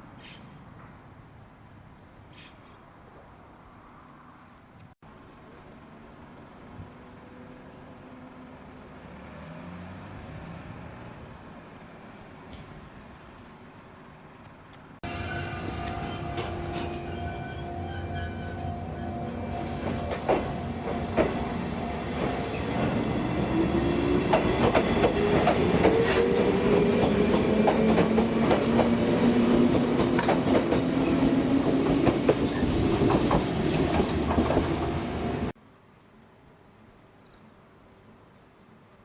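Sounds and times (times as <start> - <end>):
train motor whine: 15.1 - 29.0.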